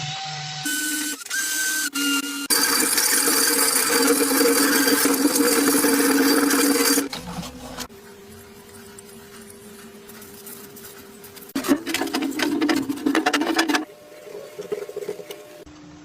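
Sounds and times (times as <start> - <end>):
small electric power tool running: 0.6 - 7.1.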